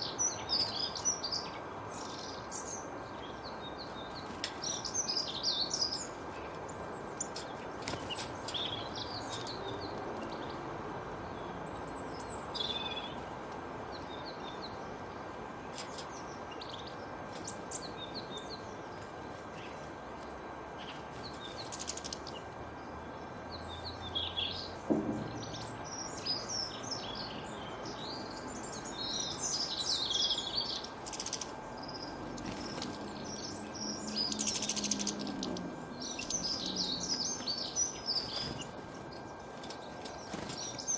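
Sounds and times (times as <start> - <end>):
birds chirping: 0.0 - 40.9
steady background hiss: 0.0 - 40.9.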